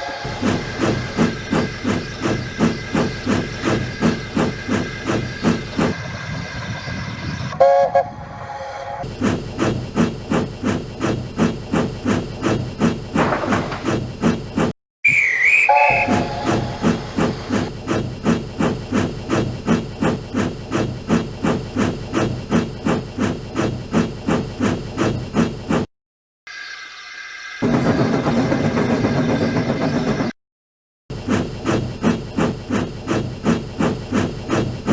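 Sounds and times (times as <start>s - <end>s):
steam whistle blast: 0.0s - 0.6s, 7.5s - 9.0s, 15.1s - 17.3s
steam locomotive chuffing: 0.0s - 14.3s, 15.5s - 24.7s, 27.6s - 30.4s, 31.1s - 34.9s.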